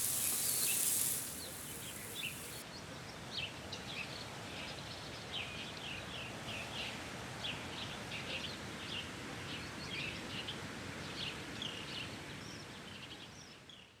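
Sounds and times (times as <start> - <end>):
outdoor background hiss: 0.0 - 2.6
small birds chirping: 0.0 - 2.6.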